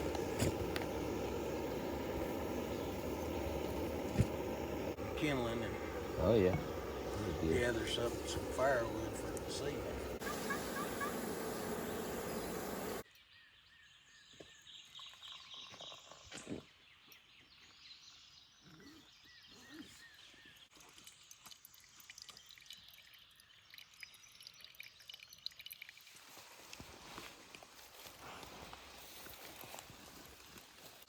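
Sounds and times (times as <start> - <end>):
birds chirping: 0.0 - 20.7.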